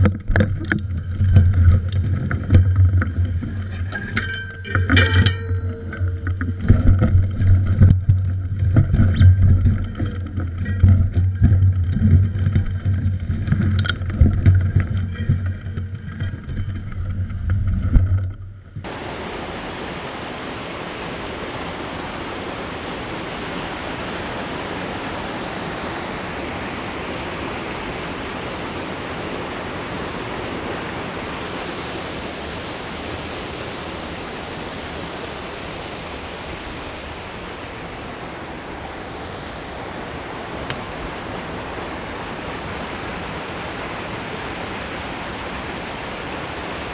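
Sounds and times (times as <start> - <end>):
water rushing over dam: 18.8 - 46.9.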